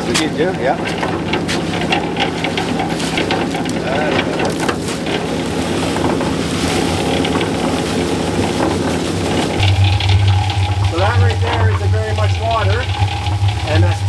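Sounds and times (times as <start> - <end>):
cement mixer churning: 0.0 - 14.0.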